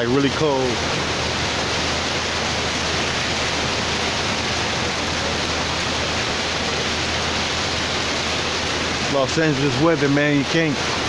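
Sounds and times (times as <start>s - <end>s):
heavy rain and hail: 0.0s - 11.0s.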